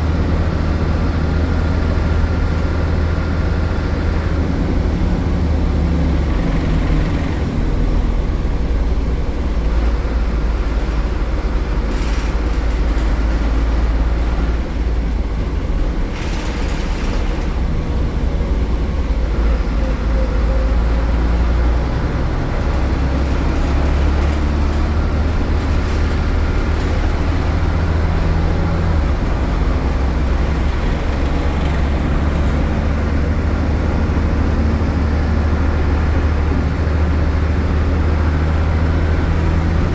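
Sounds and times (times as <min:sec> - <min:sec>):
bus diesel engine droning: 0:00.0 - 0:39.9.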